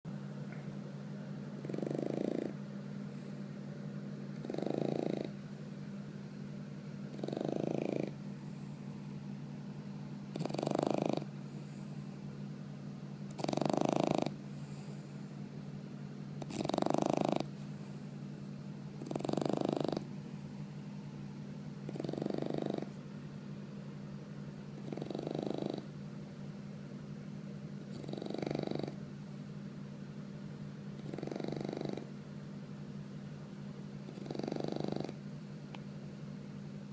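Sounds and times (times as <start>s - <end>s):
puppy snoring: 1.5s - 3.5s, 4.3s - 5.4s, 7.0s - 8.8s, 10.3s - 12.2s, 13.2s - 15.3s, 16.4s - 18.2s, 18.9s - 20.2s, 21.8s - 23.0s, 24.7s - 26.0s, 27.8s - 29.0s, 30.9s - 32.2s, 34.0s - 35.3s.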